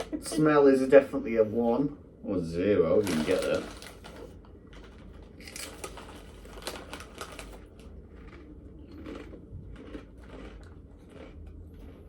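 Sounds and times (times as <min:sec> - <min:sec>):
crunching and chewing rice chips: 0:03.0 - 0:12.0.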